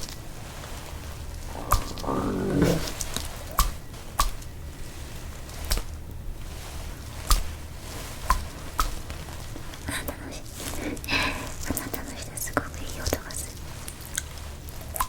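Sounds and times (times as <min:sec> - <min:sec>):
crisp chewing crunches: 0:00.0 - 0:04.5, 0:13.1 - 0:15.0.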